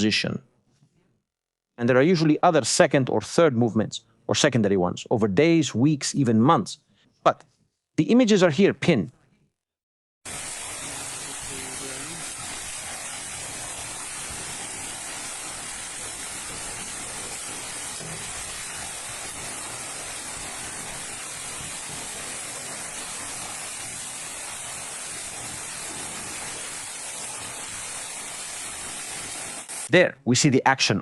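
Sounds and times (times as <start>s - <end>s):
steady high hiss: 10.3s - 30.6s.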